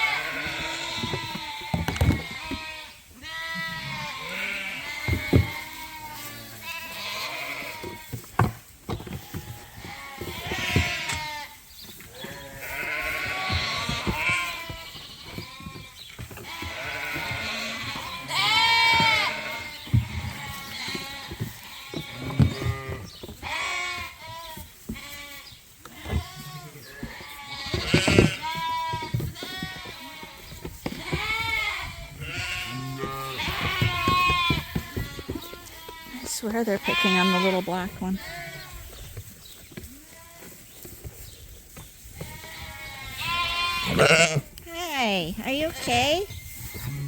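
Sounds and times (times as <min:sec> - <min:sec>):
lambs and sheep bleating: 0:00.0 - 0:08.2, 0:09.1 - 0:40.8, 0:42.1 - 0:47.0.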